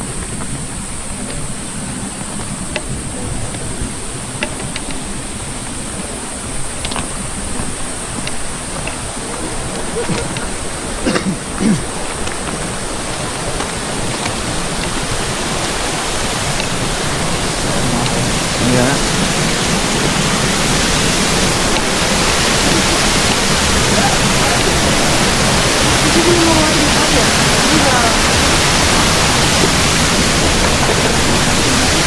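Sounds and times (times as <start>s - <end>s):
steady rushing noise: 0.0s - 32.0s
faint clicks: 0.2s - 32.0s.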